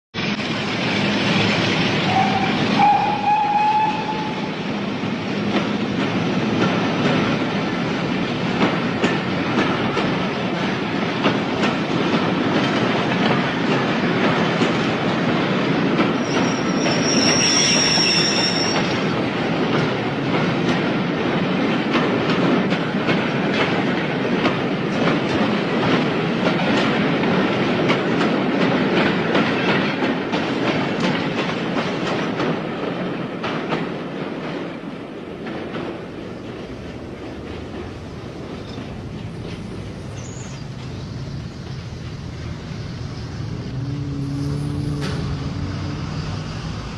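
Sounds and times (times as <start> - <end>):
train wheels rumbling on rails: 0.2 - 46.9
high wheel squeal: 16.2 - 19.1.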